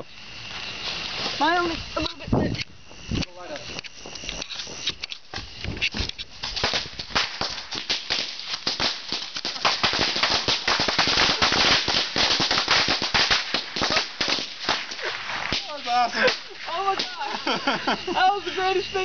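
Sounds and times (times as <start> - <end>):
bottle rockets crackling: 4.4 - 17.4.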